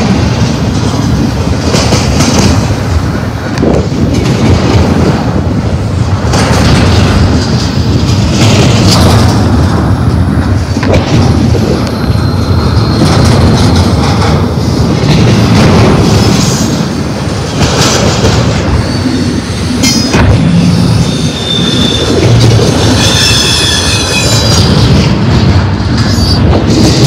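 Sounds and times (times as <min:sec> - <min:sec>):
freight train wheels rumbling: 0:00.0 - 0:27.0
wheels clacking over rail joints: 0:00.0 - 0:27.0
wheel squeal: 0:20.9 - 0:24.9, 0:26.0 - 0:26.5.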